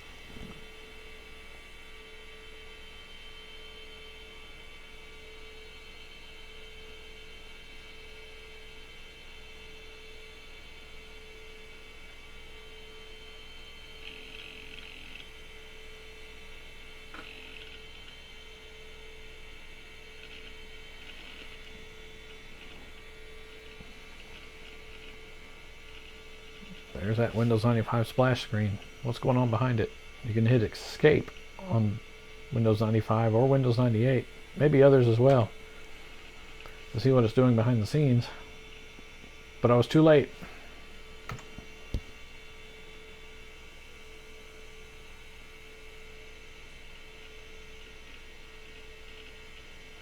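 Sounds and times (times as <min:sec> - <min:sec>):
computer electrical hum and whine: 0:00.0 - 0:50.0.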